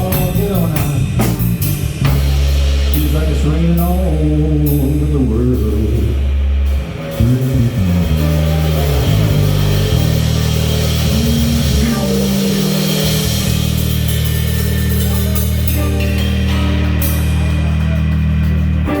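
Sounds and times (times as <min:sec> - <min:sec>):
instrumental band music: 0:00.0 - 0:19.0
cymbal wash: 0:06.1 - 0:19.0.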